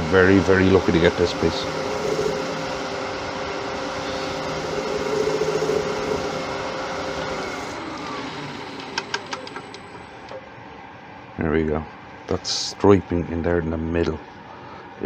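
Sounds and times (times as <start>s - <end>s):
wood lathe spinning down: 0.0s - 10.3s.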